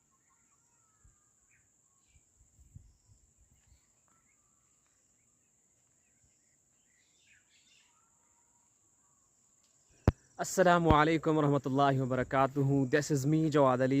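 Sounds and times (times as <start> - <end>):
faint bird chirps: 0.0 - 10.8.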